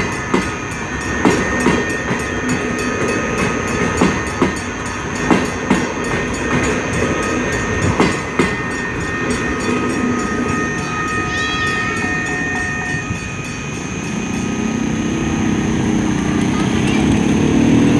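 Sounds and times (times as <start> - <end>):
train wheels knocking over rail joints: 0.0 - 11.0
train rumble: 0.0 - 17.9
thin high tones: 4.6 - 16.0.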